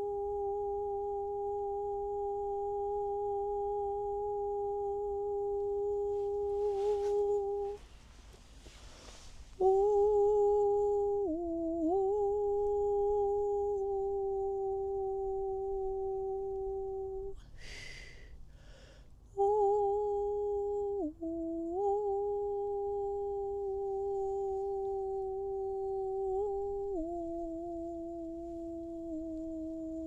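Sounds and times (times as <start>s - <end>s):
woman humming a long note: 0.0s - 7.8s, 9.0s - 18.1s, 19.3s - 30.0s
woman breathing in: 17.4s - 19.2s.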